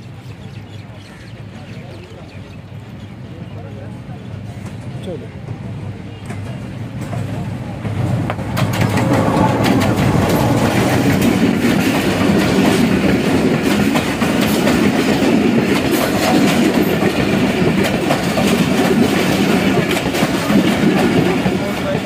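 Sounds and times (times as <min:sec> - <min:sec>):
train wheels rumbling on rail: 0:00.0 - 0:22.0
wheels clicking over rail joints: 0:06.2 - 0:22.0.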